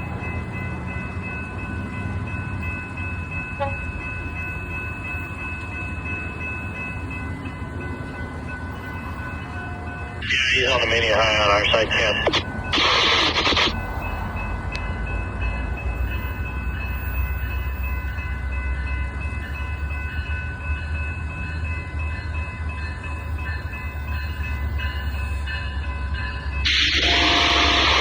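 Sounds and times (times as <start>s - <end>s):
train rumbling past: 0.0s - 13.1s, 13.7s - 28.0s.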